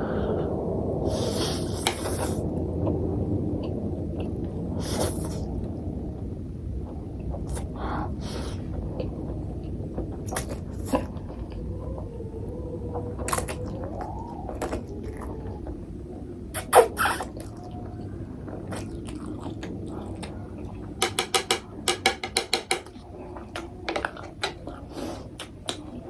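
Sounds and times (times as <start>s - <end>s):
mouth clicks: 16.5s - 17.6s
chewing noodles: 16.6s - 20.9s.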